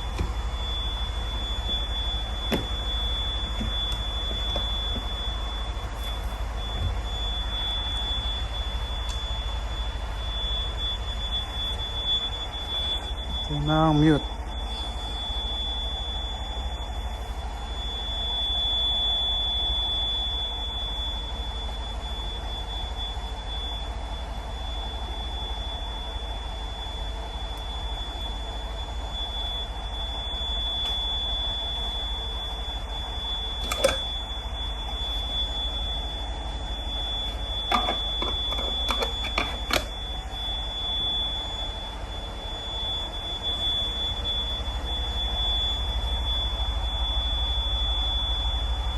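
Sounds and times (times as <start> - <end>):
high-pitched tone: 30.1 - 45.7.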